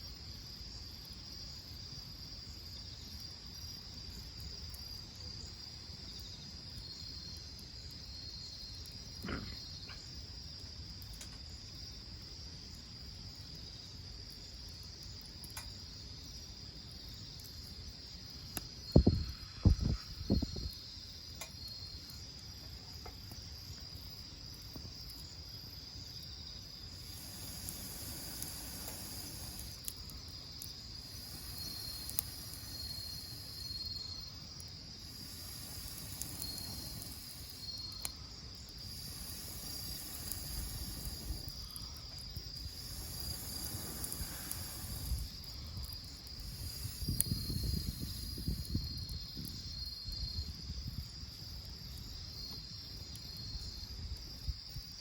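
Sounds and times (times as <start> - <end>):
insects chirping and trilling: 0.0 - 55.0
faint clicks: 15.4 - 15.7, 31.4 - 33.2.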